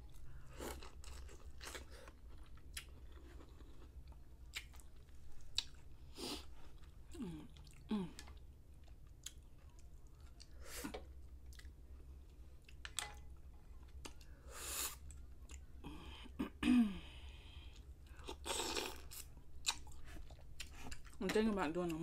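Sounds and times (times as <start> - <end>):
wet chewing: 17.8 - 22.0.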